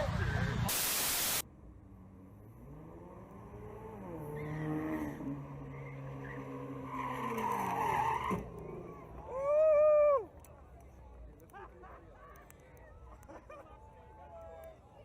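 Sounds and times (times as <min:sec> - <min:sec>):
car engine accelerating: 0:01.7 - 0:09.3
tyres skidding: 0:02.0 - 0:09.4.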